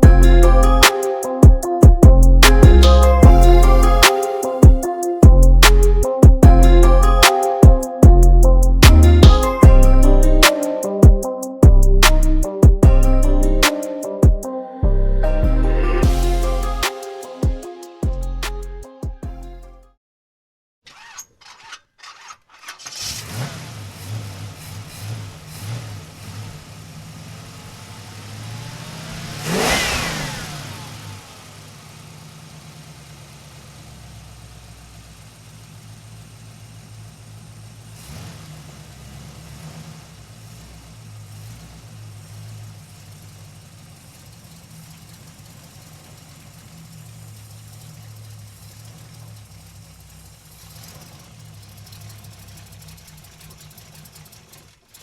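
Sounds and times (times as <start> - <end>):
engine starting and idling: 20.9 - 55.0.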